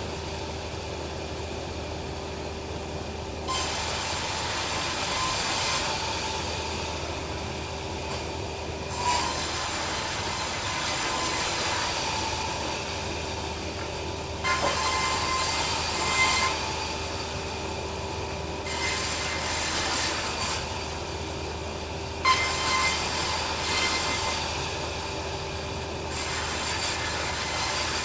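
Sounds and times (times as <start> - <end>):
saw blade cutting log: 14.4 - 16.7, 26.1 - 28.0.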